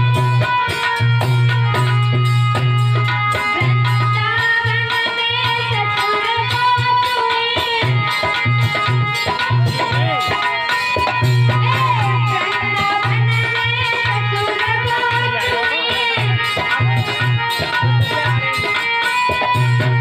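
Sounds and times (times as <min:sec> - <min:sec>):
bending melody line: 0:00.0 - 0:20.0.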